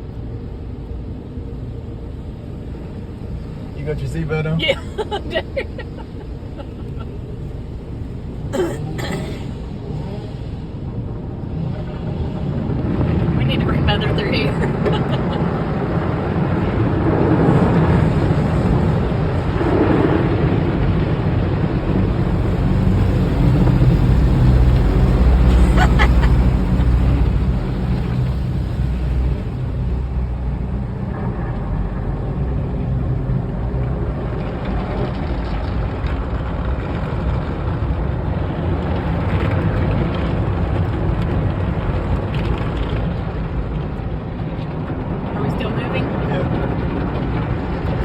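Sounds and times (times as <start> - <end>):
car wash machinery rumbling: 0.0 - 48.0.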